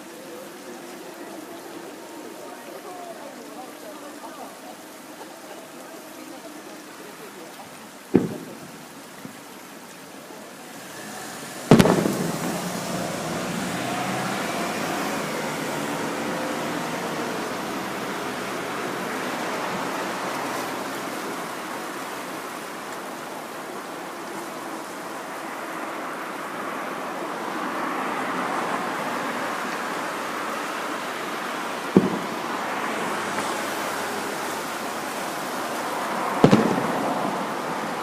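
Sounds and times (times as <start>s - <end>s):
firework hiss: 7.8s - 38.0s
firework shell bang: 8.2s - 8.8s, 11.7s - 13.0s, 32.0s - 32.7s, 36.4s - 37.2s.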